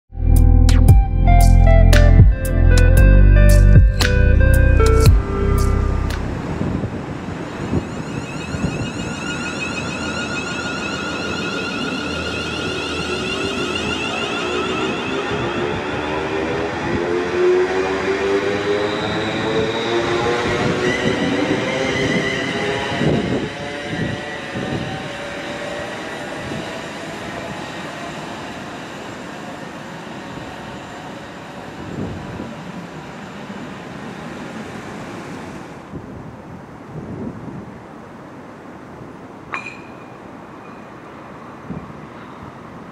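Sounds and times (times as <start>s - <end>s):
high pulsing whine: 3.0s - 16.4s
train rushing noise: 3.5s - 42.9s.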